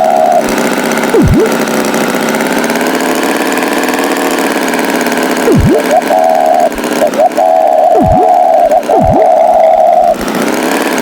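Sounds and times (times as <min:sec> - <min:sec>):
cartoon tractor engine idling: 0:00.0 - 0:11.0
swooping whistle: 0:05.5 - 0:10.2.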